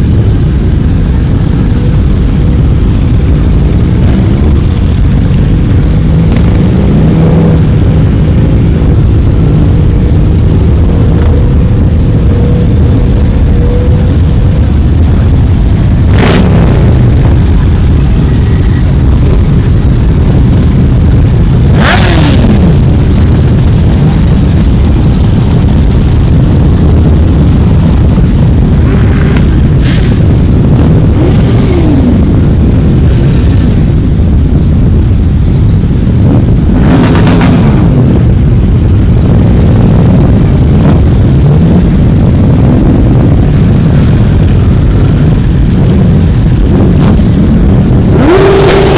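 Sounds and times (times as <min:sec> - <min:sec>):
motorcycles passing by: 0:00.0 - 0:35.8
steady low rumble: 0:00.0 - 0:48.9.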